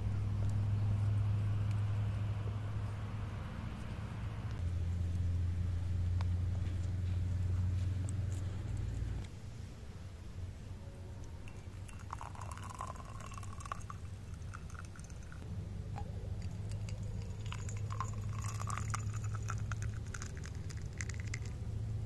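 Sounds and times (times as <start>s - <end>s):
crunching and chewing bread: 16.4s - 21.6s.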